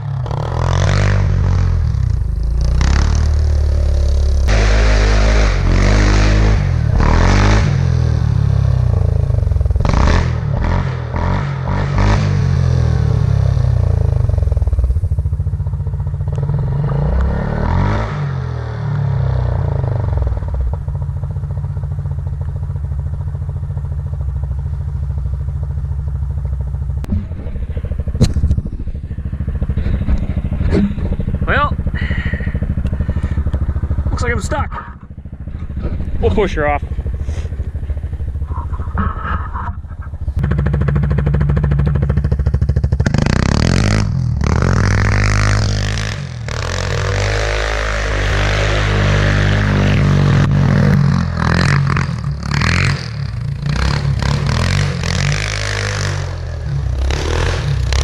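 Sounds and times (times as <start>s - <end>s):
atv engine revving: 0.0s - 58.0s
clatter and scraping in snow: 27.0s - 31.6s, 34.1s - 43.2s.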